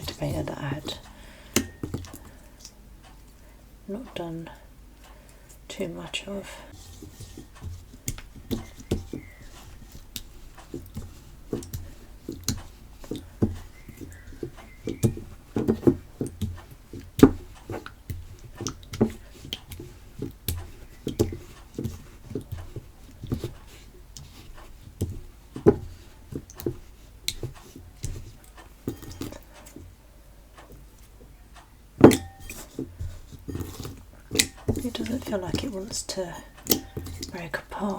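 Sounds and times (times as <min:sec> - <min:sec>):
slime squelching and popping: 0:32.0 - 0:37.5.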